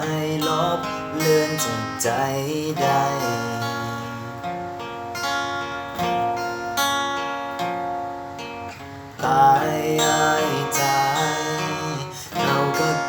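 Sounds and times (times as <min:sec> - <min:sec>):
acoustic guitar chords: 0:00.0 - 0:13.0.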